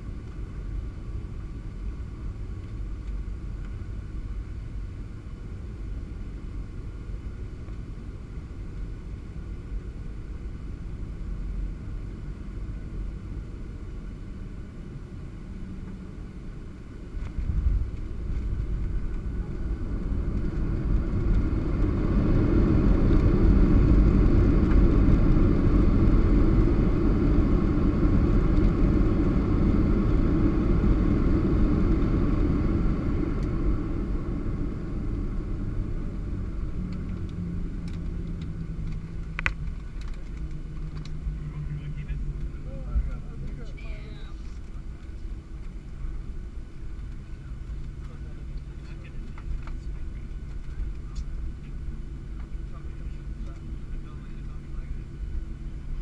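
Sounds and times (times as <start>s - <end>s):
jet engines and airflow rumble: 0.0s - 56.0s
reverse thrust rumble: 16.5s - 56.0s.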